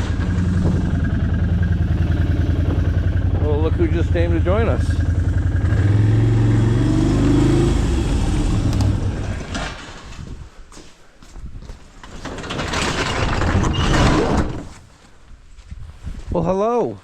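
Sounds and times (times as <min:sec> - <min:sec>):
vehicle engine running: 0:00.0 - 0:09.5
rustling noise: 0:09.2 - 0:16.4.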